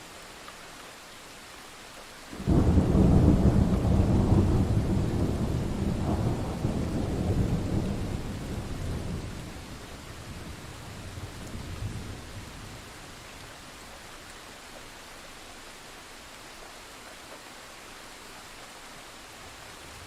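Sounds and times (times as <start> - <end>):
rain hiss: 0.0 - 20.0
rolling thunderclap: 2.4 - 9.6.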